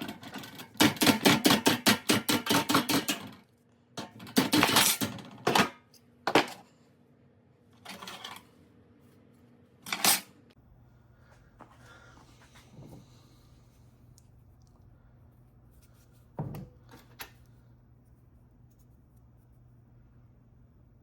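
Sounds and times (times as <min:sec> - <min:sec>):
metal parts clinking and clattering: 0:09.9 - 0:10.3.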